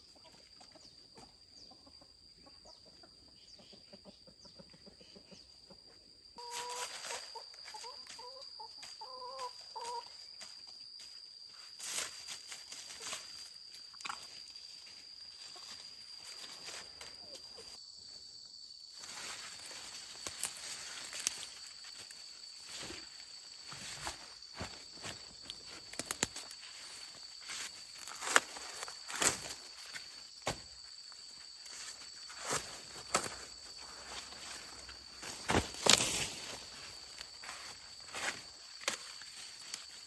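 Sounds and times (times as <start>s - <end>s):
insect drone: 0.0s - 40.0s
footsteps through dry plants: 19.0s - 30.8s, 31.5s - 40.0s
plant stalks cracking: 25.5s - 26.6s, 35.3s - 36.5s.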